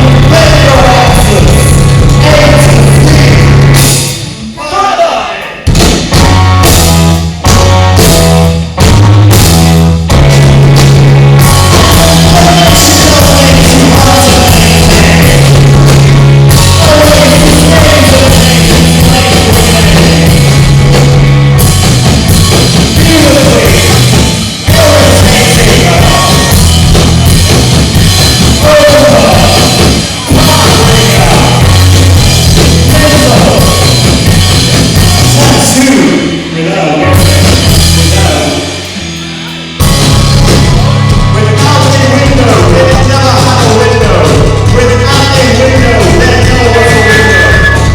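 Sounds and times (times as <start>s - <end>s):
electric guitar: 0.0s - 4.6s, 5.6s - 47.9s
bass guitar: 0.0s - 4.7s, 5.3s - 47.9s
person singing: 0.0s - 5.7s, 11.5s - 21.2s, 22.9s - 26.6s, 28.6s - 32.0s, 32.6s - 34.0s
drum kit: 0.0s - 47.9s.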